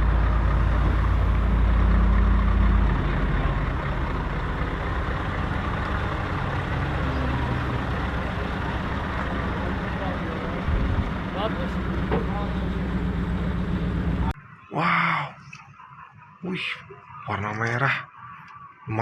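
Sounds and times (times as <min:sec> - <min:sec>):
heavy truck engine rumbling: 0:00.0 - 0:14.4.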